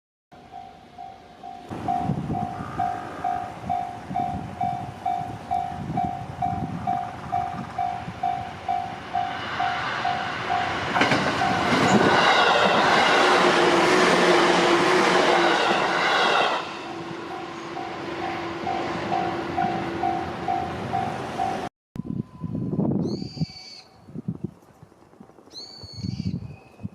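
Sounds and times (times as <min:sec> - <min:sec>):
level crossing warning bell: 0:00.4 - 0:12.1, 0:16.8 - 0:22.6
electric train passing: 0:00.4 - 0:23.0.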